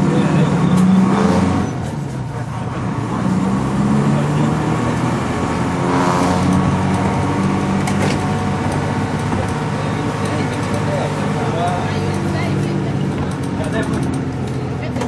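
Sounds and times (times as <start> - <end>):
bus engine droning: 0.0 - 15.0
sharp clicks or rattles: 13.2 - 14.6.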